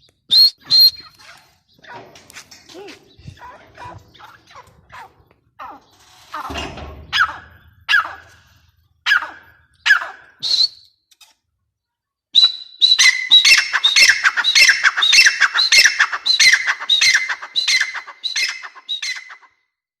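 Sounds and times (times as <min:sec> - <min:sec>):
francolin calling: 0:12.4 - 0:19.5.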